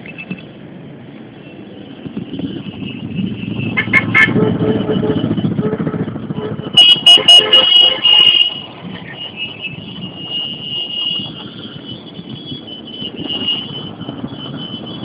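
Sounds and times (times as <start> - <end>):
motorcycle engines running: 0.0 - 15.0
short horn toots: 3.4 - 8.7.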